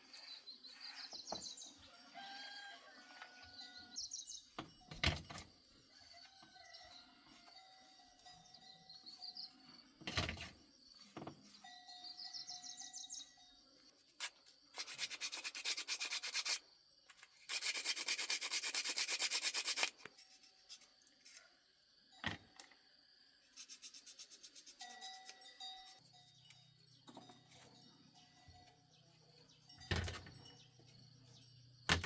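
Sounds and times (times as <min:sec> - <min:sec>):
abrasive rubbing strokes: 0:17.5 - 0:20.0.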